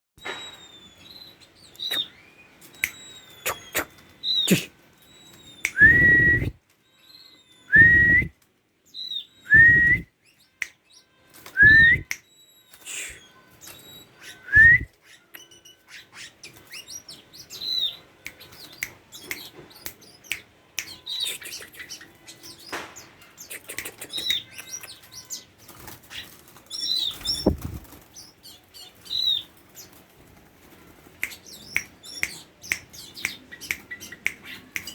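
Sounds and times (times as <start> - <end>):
magpie-robin whistling: 0.2 - 6.5, 7.3 - 8.3, 11.6 - 18.0.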